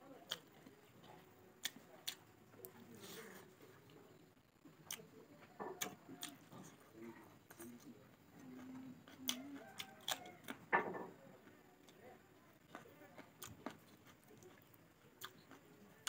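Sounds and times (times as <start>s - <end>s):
person chewing rice: 5.8s - 10.6s, 12.6s - 16.0s.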